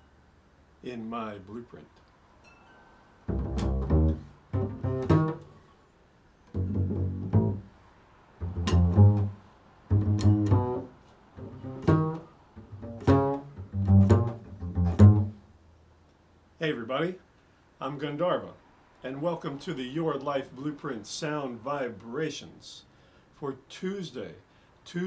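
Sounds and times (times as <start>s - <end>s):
double bass playing: 3.3s - 5.7s, 6.5s - 7.8s, 8.4s - 15.6s.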